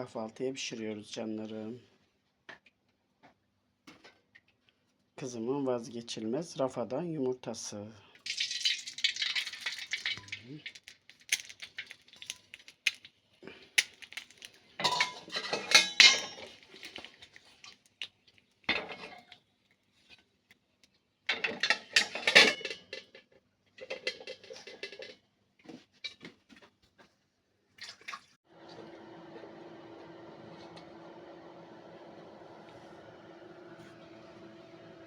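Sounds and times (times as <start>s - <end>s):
dishes and cutlery clattering: 14.8s - 17.0s, 18.7s - 19.2s, 21.3s - 25.2s.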